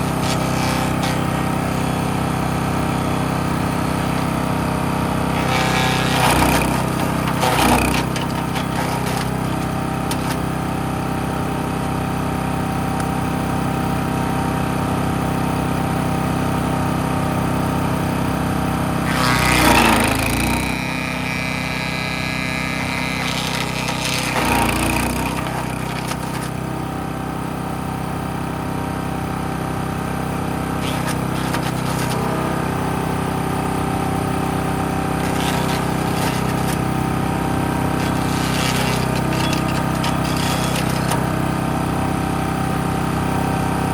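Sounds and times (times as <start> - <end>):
wood chipper engine running: 0.0 - 43.9
wood being chipped: 5.3 - 10.4, 19.1 - 26.8, 30.8 - 32.9, 34.2 - 41.6.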